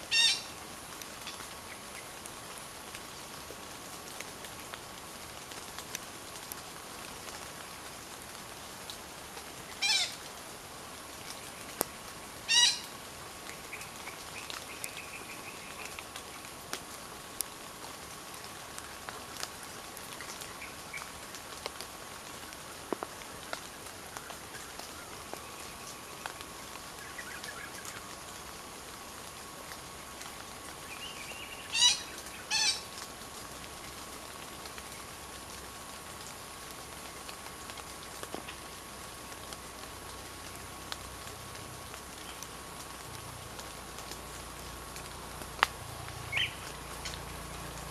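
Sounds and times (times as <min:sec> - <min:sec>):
forest ambience: 0:00.0 - 0:47.9
buzzy bird call: 0:00.1 - 0:00.5, 0:09.8 - 0:10.2, 0:12.5 - 0:12.9, 0:31.3 - 0:32.8
harsh bird calls: 0:12.5 - 0:12.9, 0:31.3 - 0:32.8.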